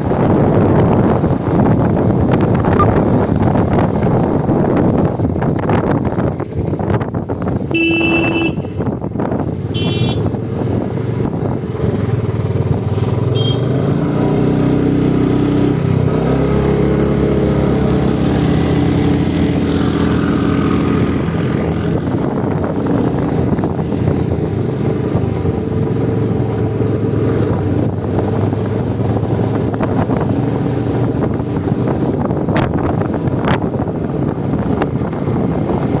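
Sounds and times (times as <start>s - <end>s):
motorcycle engine running: 0.0s - 15.6s
vehicle horn toots: 7.7s - 8.9s, 9.7s - 10.3s, 13.4s - 13.8s.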